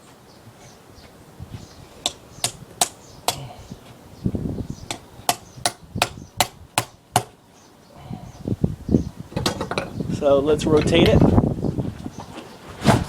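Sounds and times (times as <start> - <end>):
hammer striking steel chisel: 2.0 - 3.5, 4.9 - 7.4.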